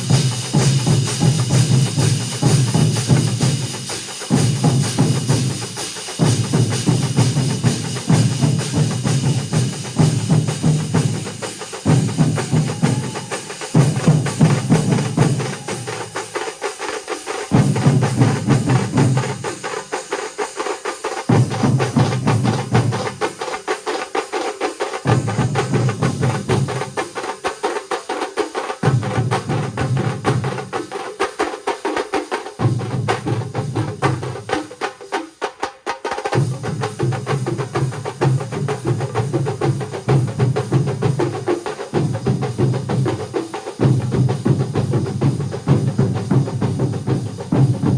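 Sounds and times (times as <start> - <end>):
heavy low drum beats: 0.0 - 20.2, 36.4 - 47.9
drum ensemble playing: 0.0 - 47.9.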